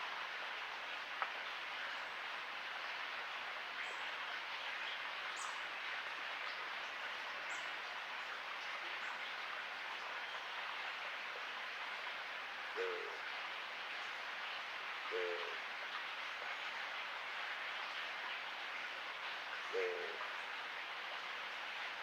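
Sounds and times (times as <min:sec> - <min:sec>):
hiss of night sounds: 0:08.8 - 0:22.0.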